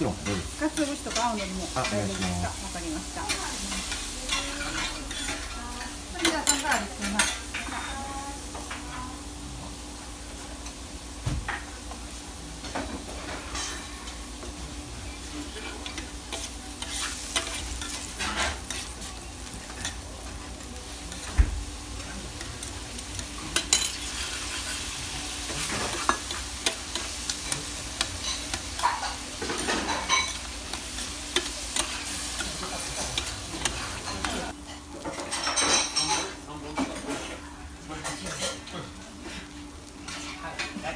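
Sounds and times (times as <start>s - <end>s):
noodles sizzling on griddle: 0.0s - 40.9s
metal spatulas scraping griddle: 4.3s - 5.5s, 15.4s - 20.0s, 22.0s - 34.5s.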